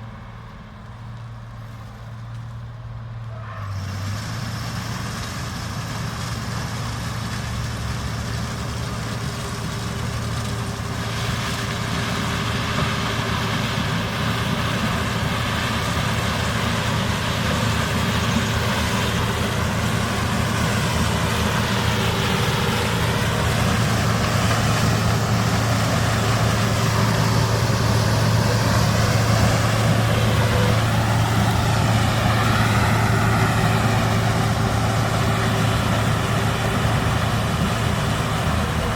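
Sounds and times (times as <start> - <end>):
diesel engine running: 0.0 - 38.9
wavering whine: 18.4 - 38.9.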